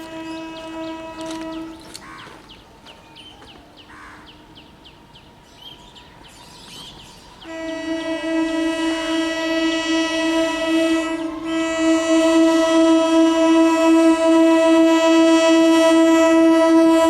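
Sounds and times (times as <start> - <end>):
train horn chord: 0.0 - 2.0, 7.4 - 17.0.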